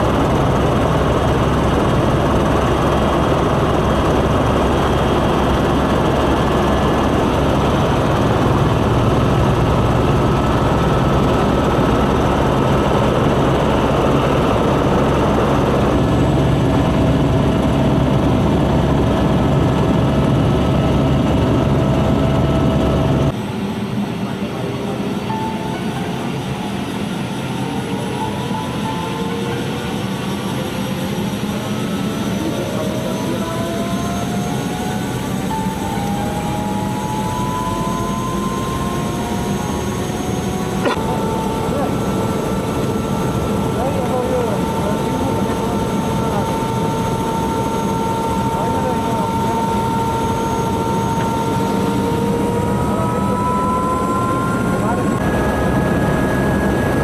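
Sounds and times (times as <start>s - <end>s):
motor pitch rising: 27.7s - 57.0s.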